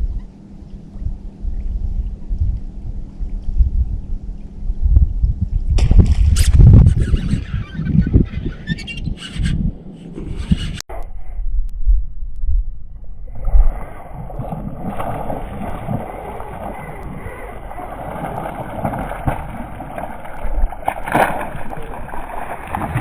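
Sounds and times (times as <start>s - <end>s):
low rumbles: 0.0s - 23.0s
wind buffeting microphone: 0.0s - 23.0s.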